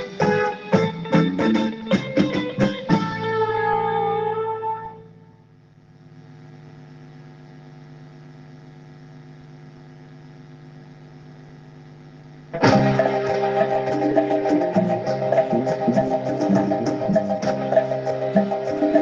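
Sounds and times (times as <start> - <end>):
cumbia music with percussion and guitar: 0.0 - 4.7, 12.6 - 19.0
electrical hum: 0.0 - 19.0
tape hiss: 0.0 - 19.0.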